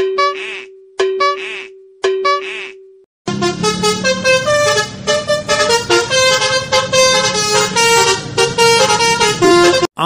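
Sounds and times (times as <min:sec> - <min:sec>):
multi-tone vehicle horn tune: 0:02.2 - 0:09.9.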